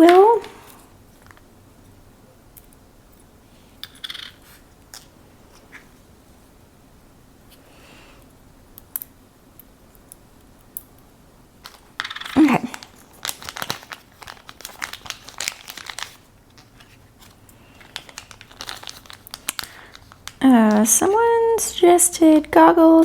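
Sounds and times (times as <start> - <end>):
plastic bag crinkling: 11.6 - 23.0.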